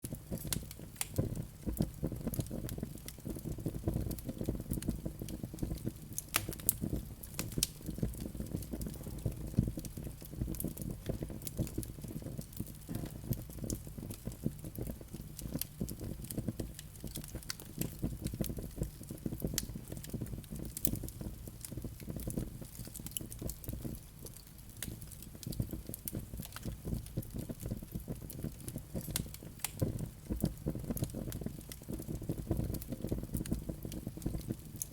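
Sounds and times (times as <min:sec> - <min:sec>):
low rumble of flames: 0:00.0 - 0:34.9
wood fire crackling and popping: 0:00.0 - 0:34.9.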